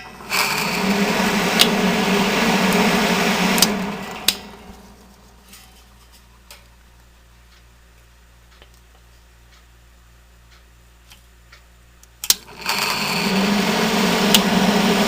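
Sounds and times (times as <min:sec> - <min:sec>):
exhaust fan rattling: 0:00.0 - 0:06.7, 0:12.4 - 0:15.0.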